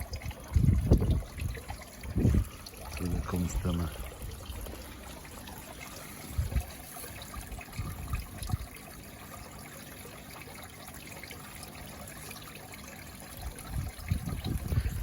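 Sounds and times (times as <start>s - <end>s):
pond waterfall trickling: 0.0s - 15.0s.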